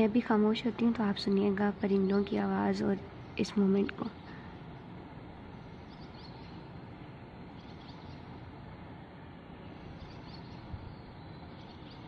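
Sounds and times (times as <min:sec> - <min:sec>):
birds chirping: 0:05.5 - 0:06.8, 0:07.4 - 0:08.4, 0:09.6 - 0:12.0.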